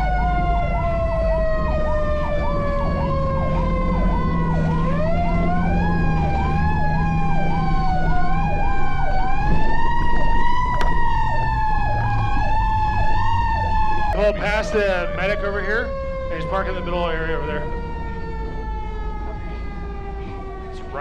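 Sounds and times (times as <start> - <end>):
siren wailing: 0.0 - 21.0
siren yelping: 0.0 - 21.0
truck engine rumble: 0.0 - 21.0.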